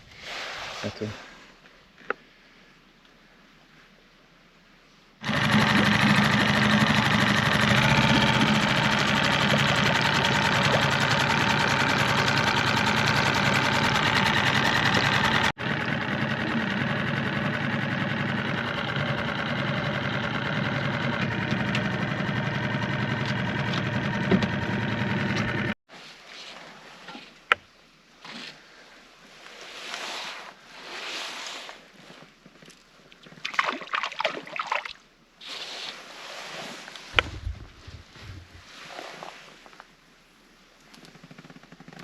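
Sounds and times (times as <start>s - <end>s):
outboard motor running: 5.2s - 25.8s, 37.2s - 38.7s.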